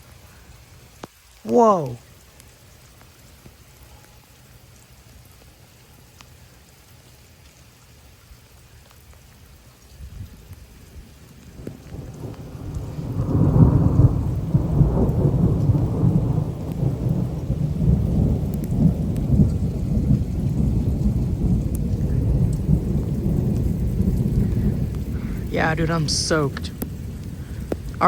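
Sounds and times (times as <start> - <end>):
heavy rain: 0.0 - 28.0
rolling thunder: 10.1 - 28.0.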